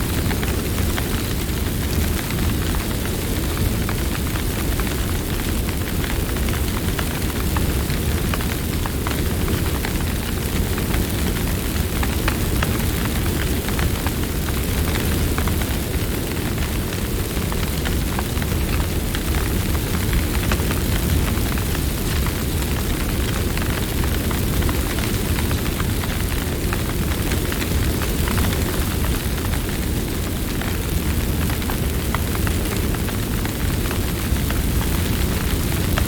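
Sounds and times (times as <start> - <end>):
campfire flames roaring: 0.0 - 36.0
wood crackling and popping: 0.0 - 36.0.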